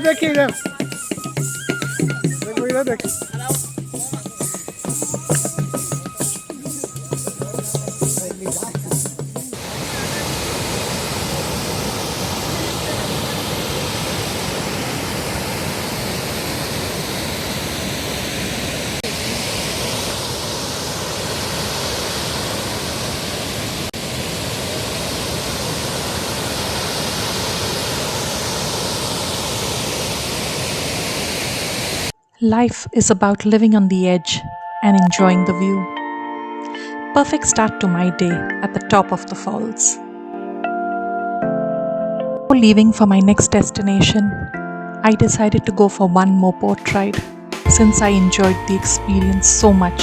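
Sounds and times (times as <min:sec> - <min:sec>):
waterfall roaring: 0:09.5 - 0:32.1.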